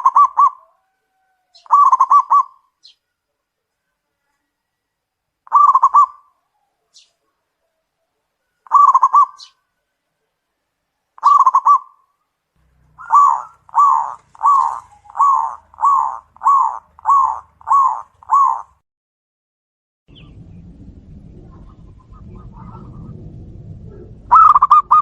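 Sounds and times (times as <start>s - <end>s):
dove cooing: 0.0s - 2.6s, 5.5s - 7.0s, 7.6s - 9.6s, 11.2s - 12.0s, 12.9s - 18.8s, 23.9s - 25.0s
faint steady noise: 0.0s - 18.8s.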